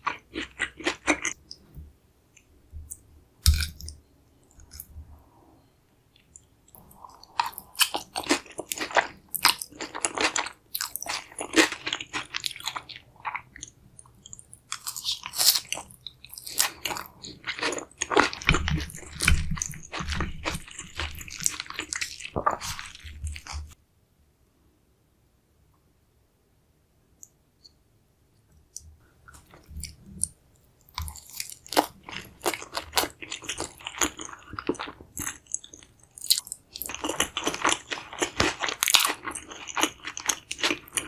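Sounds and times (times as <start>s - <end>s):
crunching bites and chewing: 3.4s - 4.0s, 7.3s - 23.8s, 30.9s - 41.0s.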